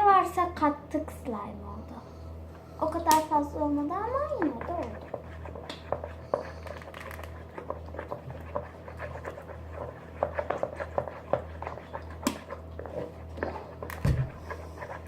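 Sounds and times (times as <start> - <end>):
slime squelching: 2.8 - 15.0.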